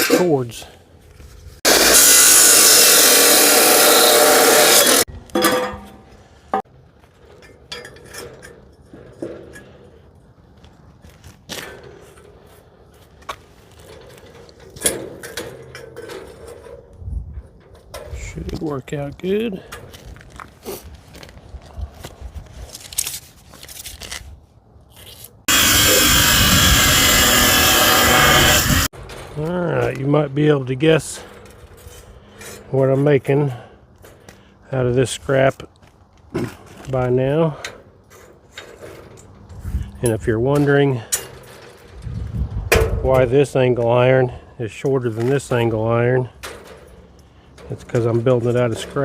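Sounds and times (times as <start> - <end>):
power tool running: 1.6 - 5.1, 25.5 - 28.9
tools and metal knocking: 5.3 - 6.0, 7.3 - 9.8.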